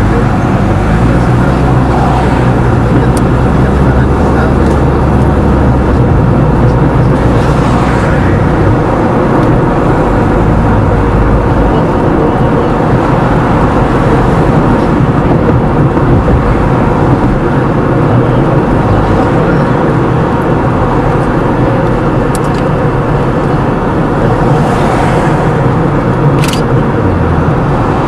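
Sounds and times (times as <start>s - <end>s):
car road and engine noise: 0.0s - 28.0s
sharp click: 26.4s - 26.7s.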